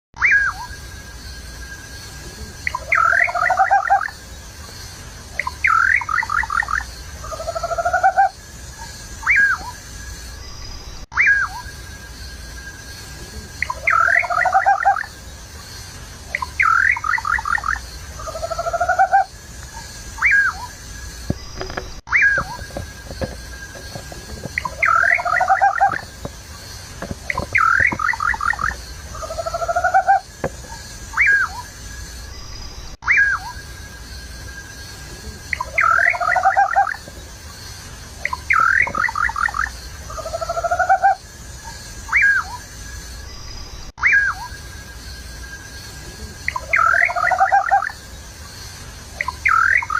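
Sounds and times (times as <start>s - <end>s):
bird singing whistled notes: 0.2s - 4.2s, 5.3s - 7.8s, 8.8s - 12.9s, 13.6s - 15.1s, 16.3s - 26.2s, 27.2s - 34.9s, 38.2s - 40.7s, 42.0s - 45.0s, 49.2s - 49.9s.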